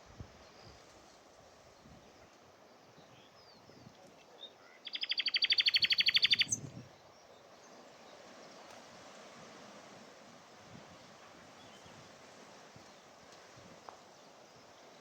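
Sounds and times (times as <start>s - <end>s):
faint bird calls: 4.3s - 8.1s
nightingale singing: 4.4s - 8.1s.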